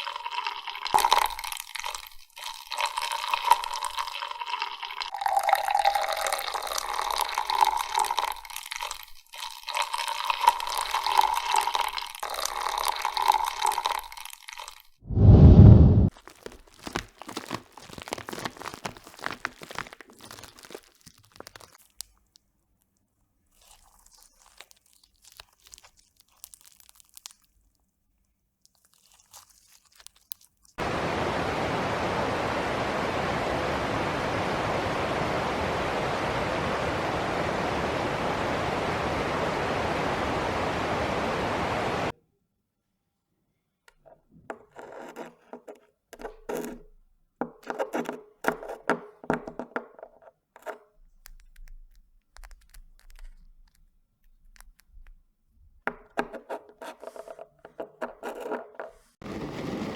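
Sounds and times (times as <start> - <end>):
crisp crunching and crackling: 16.1 - 30.8, 51.1 - 55.2
loud steady hiss: 30.8 - 42.1.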